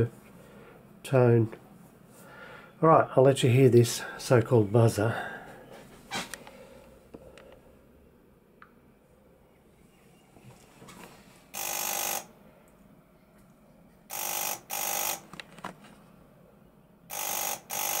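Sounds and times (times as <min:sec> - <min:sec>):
telephone buzzer ringing: 0:11.5 - 0:12.4, 0:14.1 - 0:15.4, 0:17.1 - 0:18.0.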